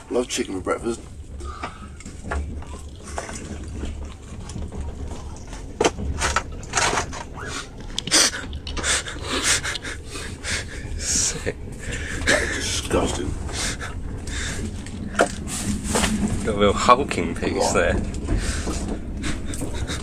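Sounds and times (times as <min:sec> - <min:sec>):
train carriage rumble: 0:00.0 - 0:20.0
styrofoam box scraping and rustling: 0:15.1 - 0:16.7.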